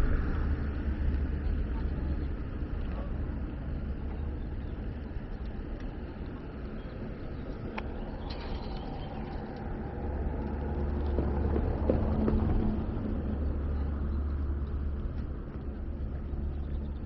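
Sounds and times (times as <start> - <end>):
outdoor street noise: 0.0 - 17.0
passing vehicle engine rumble: 5.8 - 17.0.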